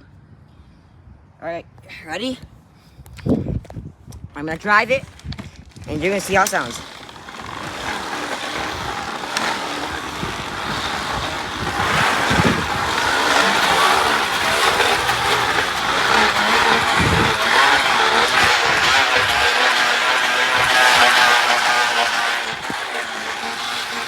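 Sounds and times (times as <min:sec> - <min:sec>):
plastic bottles buzzing on bicycle tyre: 0:04.8 - 0:24.0.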